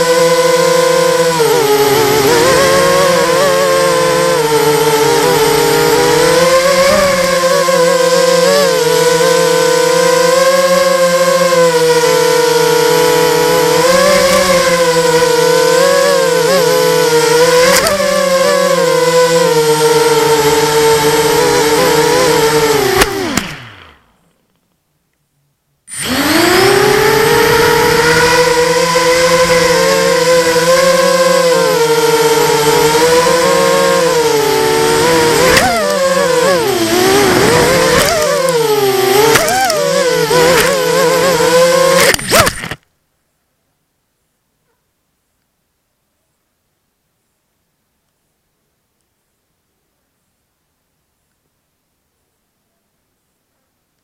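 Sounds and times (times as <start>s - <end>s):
quadcopter propellers whining: 0.0s - 24.3s, 25.9s - 42.8s.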